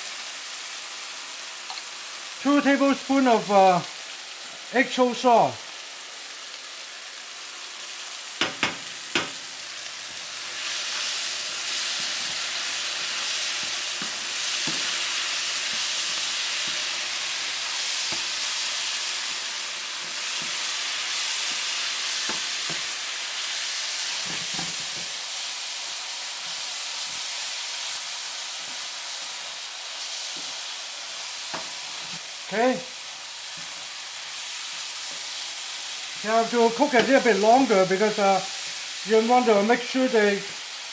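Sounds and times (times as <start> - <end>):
food sizzling in a pan: 0.0 - 40.9
utensil knocking against pan: 8.4 - 9.4.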